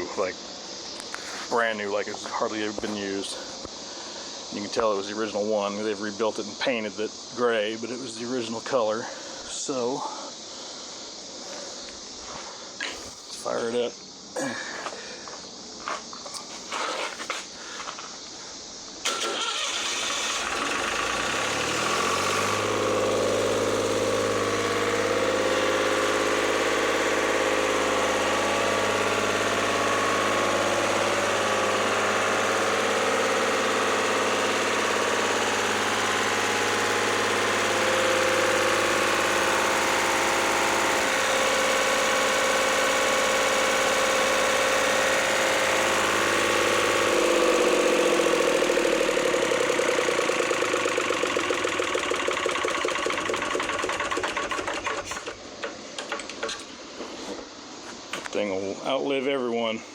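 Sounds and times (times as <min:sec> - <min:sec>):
diesel engine starting and running: 0:19.0 - 0:56.6.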